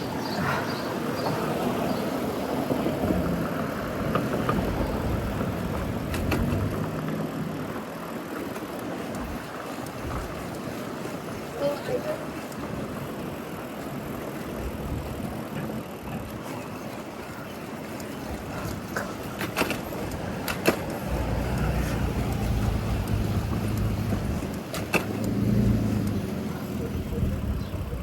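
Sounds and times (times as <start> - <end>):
cars passing: 0.0 - 28.0
low engine rumble: 18.2 - 28.0
sharp clicks: 19.4 - 26.3.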